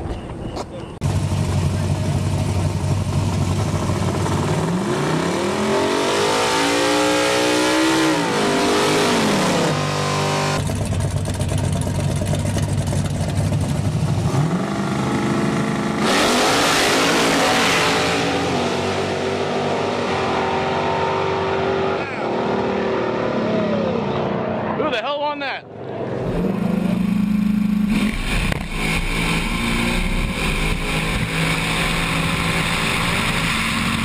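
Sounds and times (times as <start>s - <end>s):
race car engines revving: 0.0s - 34.0s
engine full-throttle launch: 26.0s - 34.0s.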